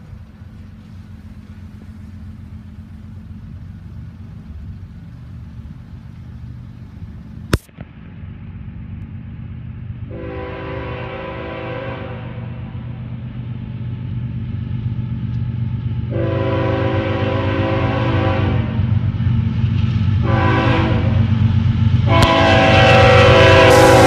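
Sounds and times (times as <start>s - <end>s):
locomotive rumbling: 0.0s - 24.0s
sharp click: 7.5s - 7.9s
locomotive air horn: 10.1s - 12.7s, 16.1s - 18.9s, 20.2s - 21.2s, 22.0s - 24.0s.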